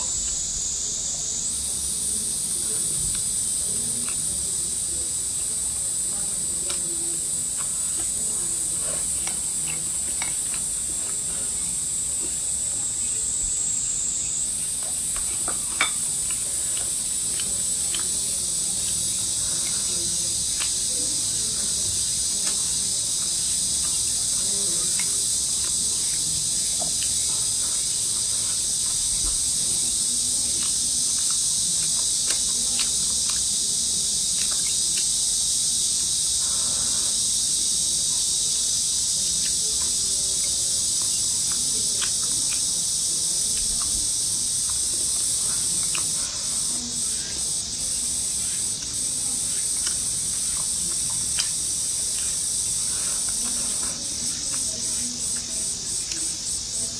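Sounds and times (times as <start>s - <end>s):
high-pitched insect chorus: 0.0s - 56.9s.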